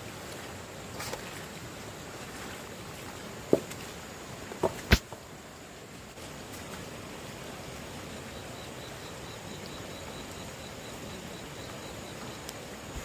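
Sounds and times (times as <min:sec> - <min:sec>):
stream water flowing: 0:00.0 - 0:13.0
high pulsed insect call: 0:07.8 - 0:13.0.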